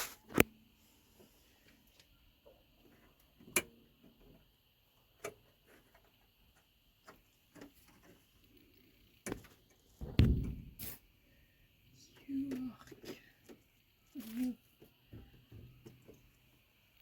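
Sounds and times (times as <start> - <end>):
heavy thump with low rumble: 10.0 - 10.8.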